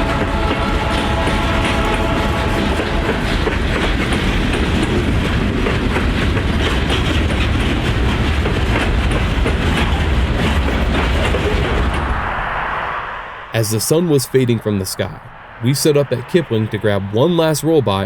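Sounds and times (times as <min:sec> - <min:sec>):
wheels clicking over rail joints: 0:00.0 - 0:12.1
freight train rumbling past: 0:00.0 - 0:18.0.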